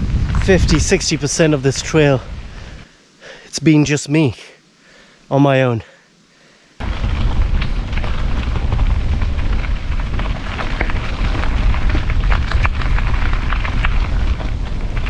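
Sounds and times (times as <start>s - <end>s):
wind buffeting microphone: 0.0s - 2.9s, 6.8s - 15.0s
bike rattling over rough track: 6.8s - 15.0s.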